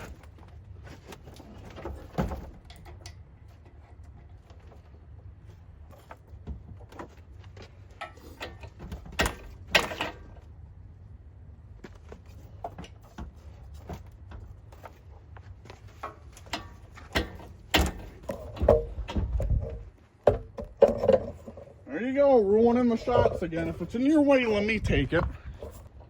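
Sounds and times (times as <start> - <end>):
metal parts clinking and rattling: 7.9 - 10.4.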